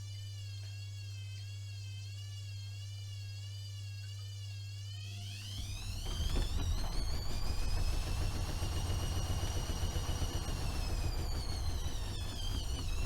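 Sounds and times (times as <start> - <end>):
washing machine spinning: 5.6 - 13.0.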